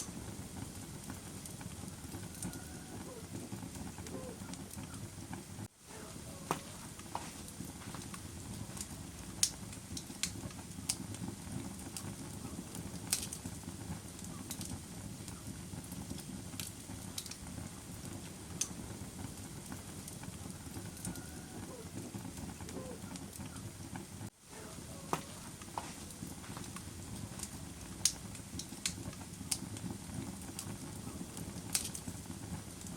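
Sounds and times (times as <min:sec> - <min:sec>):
campfire crackling and popping: 0:00.0 - 0:32.9.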